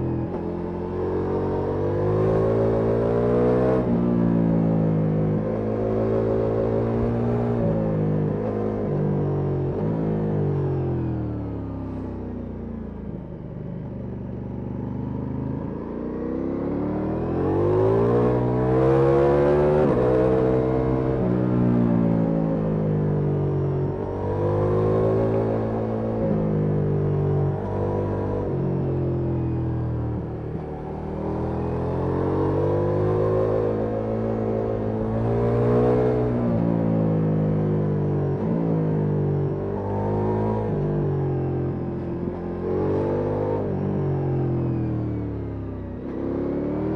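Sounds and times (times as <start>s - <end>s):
motorcycle engine accelerating: 12.7s - 46.9s.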